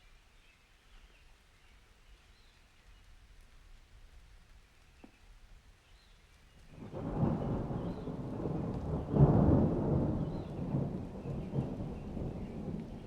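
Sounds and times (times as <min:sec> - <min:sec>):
rain: 0:00.0 - 0:13.0
thunder rumbling: 0:06.8 - 0:13.0.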